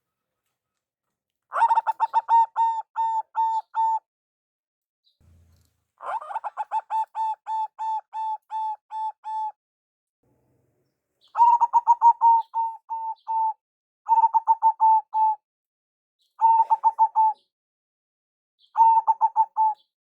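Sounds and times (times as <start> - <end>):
dove cooing: 1.5 - 4.0, 6.0 - 9.5, 11.3 - 13.5, 14.1 - 15.4, 16.4 - 17.5, 18.8 - 19.8.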